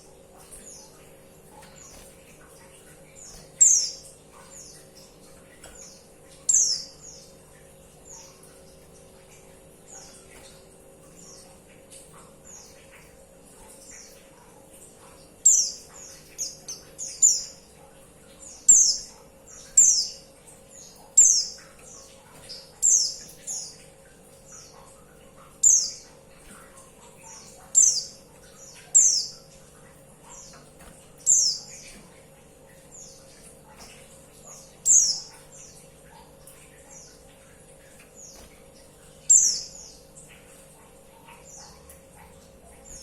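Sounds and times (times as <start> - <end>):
bird chirping calls: 3.2 - 5.1, 25.6 - 26.1, 27.2 - 29.5, 30.2 - 32.0, 32.8 - 35.8, 38.2 - 40.1.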